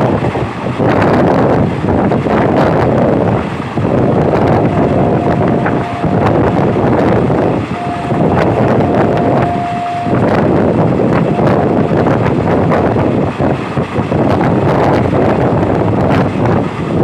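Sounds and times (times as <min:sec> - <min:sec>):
train wheels rumbling: 0:00.0 - 0:17.0
wind buffeting microphone: 0:00.0 - 0:17.0
thin high whine: 0:04.4 - 0:12.0.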